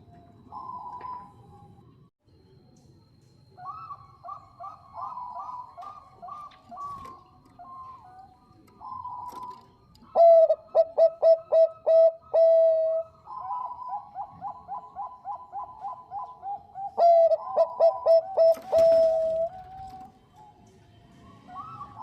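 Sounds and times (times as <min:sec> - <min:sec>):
dove cooing: 0:00.0 - 0:01.6, 0:03.6 - 0:20.5, 0:21.4 - 0:22.0.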